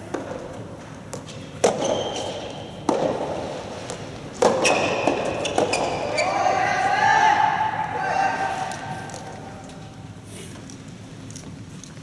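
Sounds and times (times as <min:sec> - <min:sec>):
ball struck by rackets: 0:01.1 - 0:06.0.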